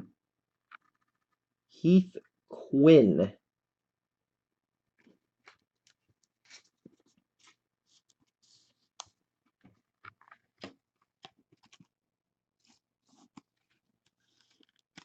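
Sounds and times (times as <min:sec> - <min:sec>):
trading cards rustling: 0:12.6 - 0:15.0.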